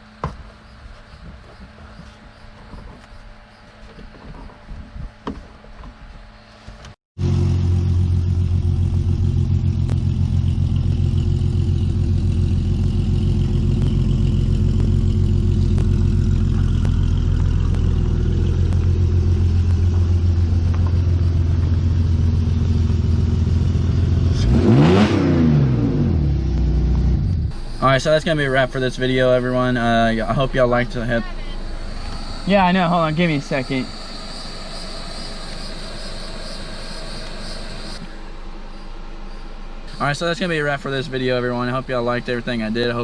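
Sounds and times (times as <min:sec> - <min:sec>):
engine revving: 0:07.2 - 0:38.9
car engine idling: 0:07.2 - 0:43.0.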